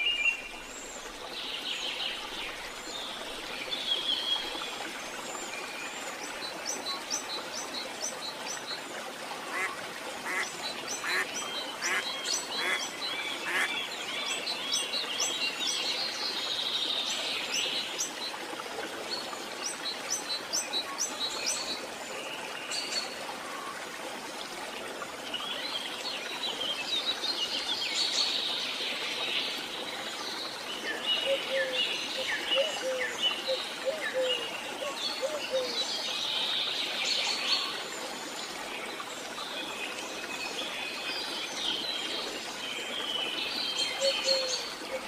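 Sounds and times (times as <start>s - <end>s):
birds chirping: 9.5s - 13.7s.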